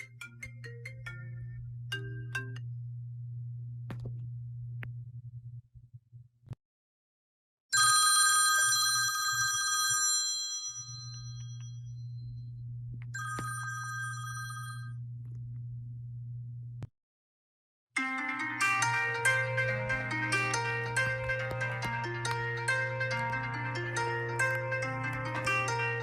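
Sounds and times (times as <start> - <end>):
steady low hum: 0.0 - 6.5, 11.5 - 16.9
bell ringing: 7.8 - 12.0, 13.2 - 14.9.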